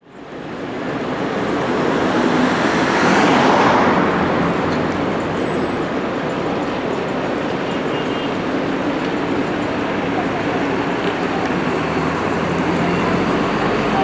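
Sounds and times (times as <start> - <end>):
tyre noise on road: 0.1 - 14.0.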